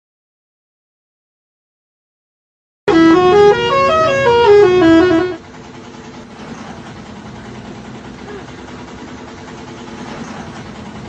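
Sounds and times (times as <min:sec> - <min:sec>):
musical vehicle horn: 0:02.9 - 0:05.5
traffic noise: 0:02.9 - 0:11.0.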